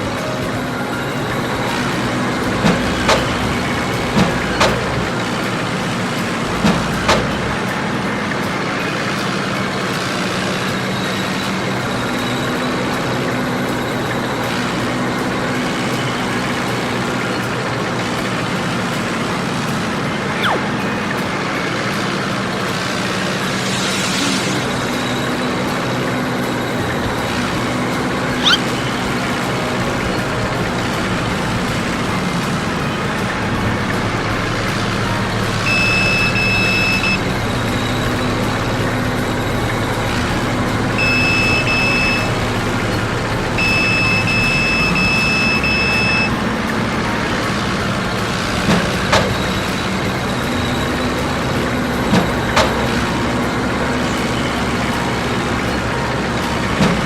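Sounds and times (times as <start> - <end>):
truck engine running: 0.0 - 57.0
reversing alarm beeps: 28.4 - 28.6, 35.6 - 38.2, 41.0 - 42.6, 43.6 - 46.4.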